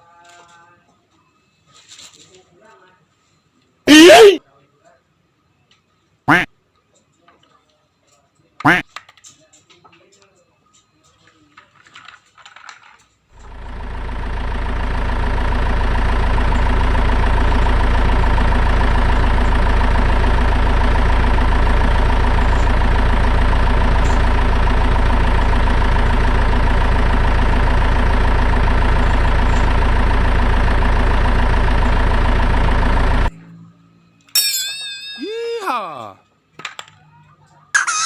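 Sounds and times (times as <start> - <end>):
vehicle engine idling: 13.4 - 33.3.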